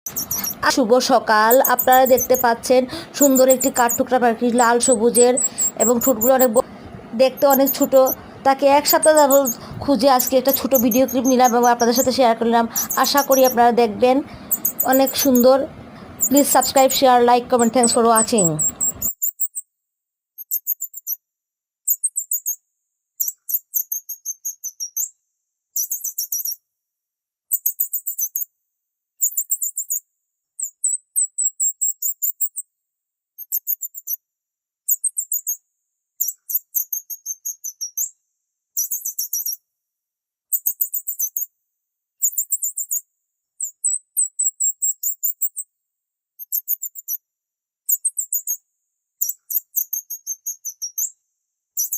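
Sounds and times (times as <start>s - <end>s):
high-pitched chirping trills: 0.0s - 19.6s, 20.4s - 21.2s, 21.9s - 22.6s, 23.2s - 25.1s, 25.8s - 26.6s, 27.5s - 28.5s, 29.2s - 30.0s, 30.6s - 32.6s, 33.4s - 34.2s, 34.9s - 35.6s, 36.2s - 38.1s, 38.8s - 39.6s, 40.5s - 41.5s, 42.2s - 43.0s, 43.6s - 45.7s, 46.4s - 47.2s, 47.9s - 48.6s, 49.2s - 51.2s.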